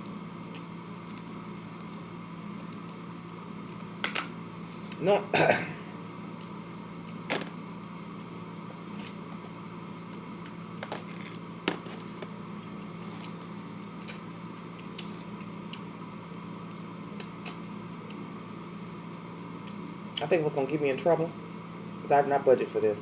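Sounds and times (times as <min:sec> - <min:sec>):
steady low hum: 0:00.0 - 0:23.0
chewing with clicks and smacks: 0:14.6 - 0:18.4.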